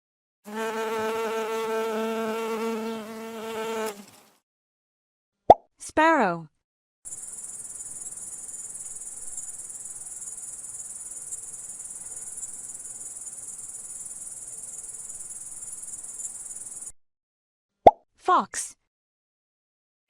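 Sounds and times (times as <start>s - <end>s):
high-pitched insect trill: 7.1s - 16.9s.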